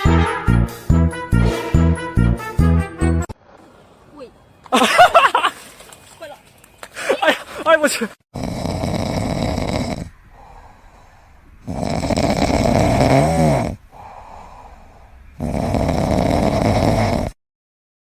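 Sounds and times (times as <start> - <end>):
whistling snore whine: 8.4 - 10.6, 11.6 - 13.8, 14.4 - 17.4
person snoring: 8.4 - 10.7, 11.6 - 14.8, 15.4 - 17.4
soft breaths: 10.0 - 11.7, 13.7 - 15.4.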